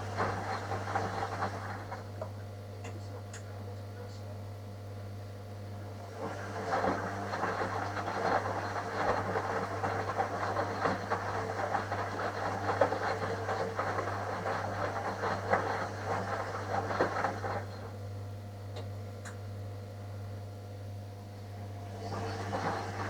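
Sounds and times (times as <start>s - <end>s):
washing machine drum churning: 0.0s - 2.2s, 6.1s - 18.0s, 22.0s - 23.0s.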